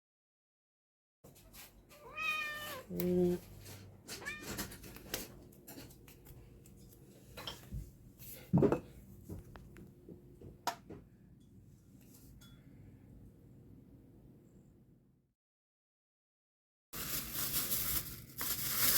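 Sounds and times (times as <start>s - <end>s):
dishes and utensils clinking: 6.8s - 7.8s
dishes clattering: 7.3s - 7.8s, 8.5s - 9.0s.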